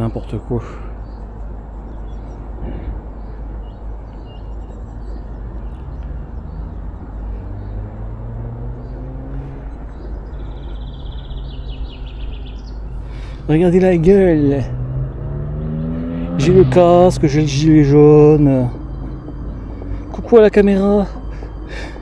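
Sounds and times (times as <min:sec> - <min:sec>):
road rumble: 0:00.0 - 0:22.0
wind buffeting: 0:00.0 - 0:22.0
electric scooter motor whine: 0:04.4 - 0:22.0.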